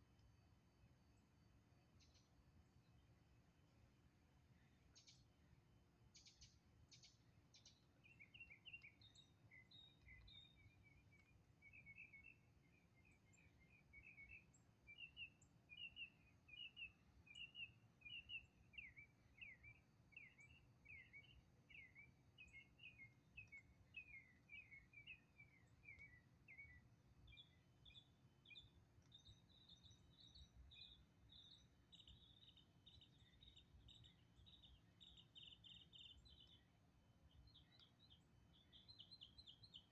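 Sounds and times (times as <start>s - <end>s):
faint birdsong chirps: 0.0s - 39.9s.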